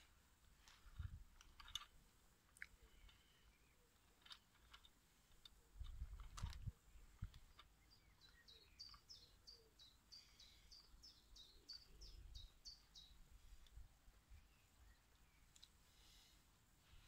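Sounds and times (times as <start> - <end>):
small bird singing: 2.8 - 4.1, 6.7 - 16.2.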